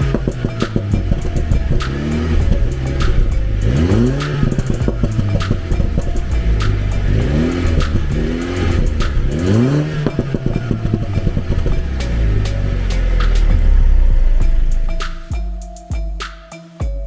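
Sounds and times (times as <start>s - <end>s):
car engine revving: 0.0s - 15.3s
exhaust popping and crackling: 0.0s - 15.4s.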